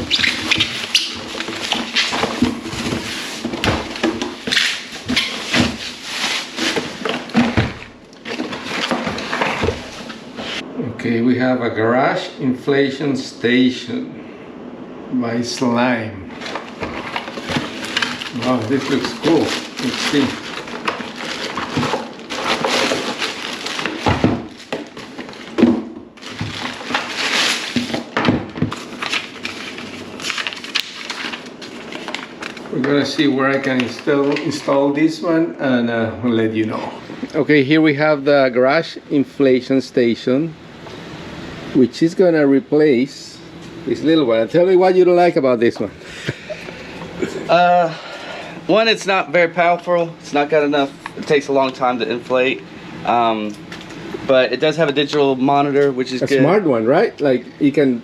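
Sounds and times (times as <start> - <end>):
cardboard packaging rustling: 0.0 - 10.6, 16.4 - 34.8.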